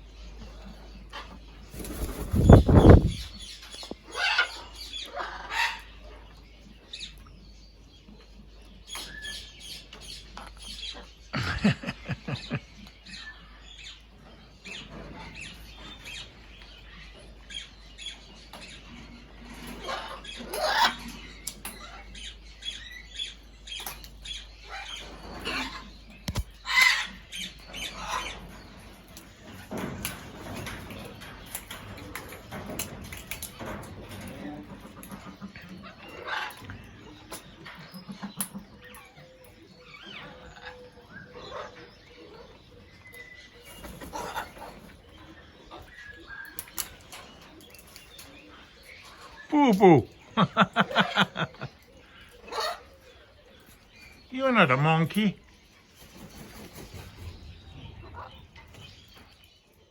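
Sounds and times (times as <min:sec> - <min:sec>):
birds flapping wings: 0:01.7 - 0:03.4.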